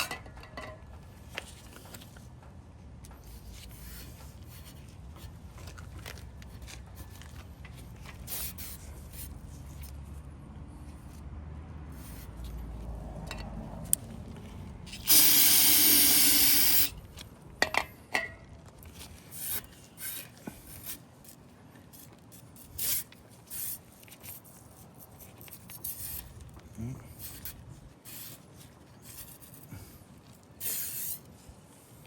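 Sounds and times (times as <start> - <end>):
aerosol can spraying: 14.9 - 16.9, 22.0 - 23.8, 28.1 - 28.4, 30.6 - 31.2.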